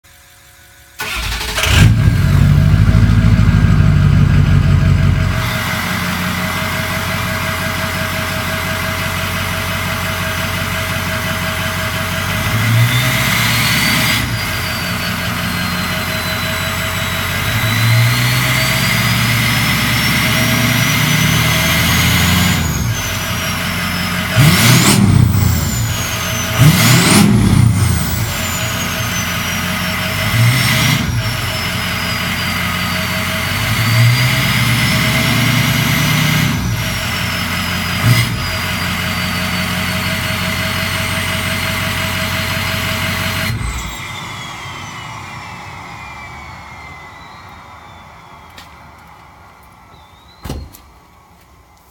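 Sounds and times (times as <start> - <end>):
diesel truck engine revving and idling: 0.1 - 49.8
turbo whistle: 12.6 - 35.8, 36.5 - 48.8.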